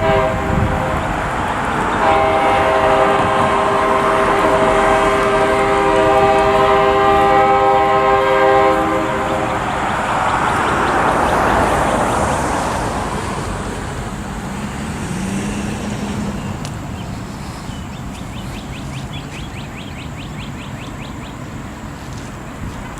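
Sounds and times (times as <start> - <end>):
distant locomotive horn chord: 0.0 - 13.5
rushing noise: 0.0 - 22.9.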